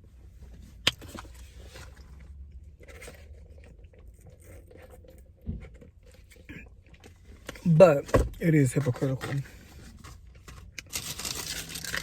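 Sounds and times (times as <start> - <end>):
low steady rumble: 0.0 - 12.0
packaging rustling and scraping: 8.9 - 12.0.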